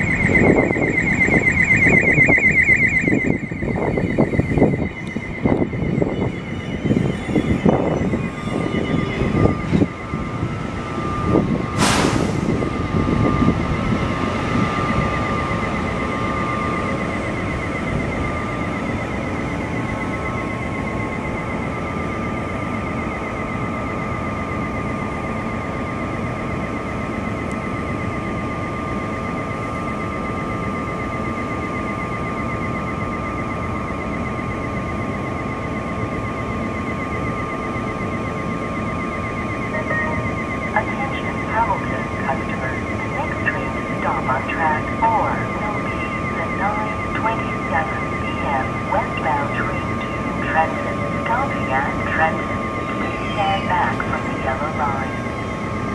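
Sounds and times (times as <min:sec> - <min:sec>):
high-pitched tone: 0:00.0 - 0:11.8, 0:39.3 - 0:55.9
train rumble: 0:03.4 - 0:35.3
short loud hiss: 0:11.8 - 0:12.5.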